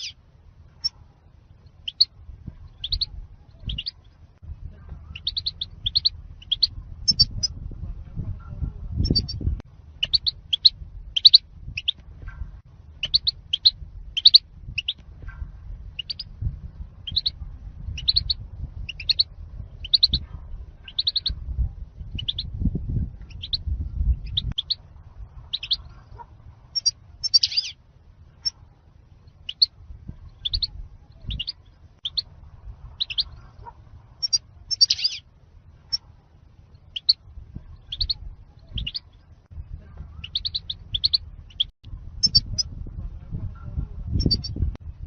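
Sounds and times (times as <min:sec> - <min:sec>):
low rumble: 0:00.0 - 0:45.0
bird high chirps: 0:01.6 - 0:02.1, 0:02.7 - 0:04.2, 0:05.0 - 0:07.6, 0:09.0 - 0:12.4, 0:13.0 - 0:15.0, 0:16.0 - 0:16.3, 0:17.0 - 0:21.4, 0:22.0 - 0:22.6, 0:23.2 - 0:24.8, 0:25.5 - 0:26.2, 0:26.8 - 0:27.8, 0:29.3 - 0:32.3, 0:33.0 - 0:33.5, 0:34.2 - 0:35.3, 0:36.7 - 0:39.4, 0:40.1 - 0:42.7, 0:44.2 - 0:44.6.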